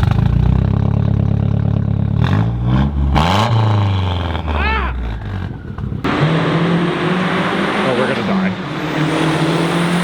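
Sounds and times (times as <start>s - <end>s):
car engine revving: 2.1s - 10.0s.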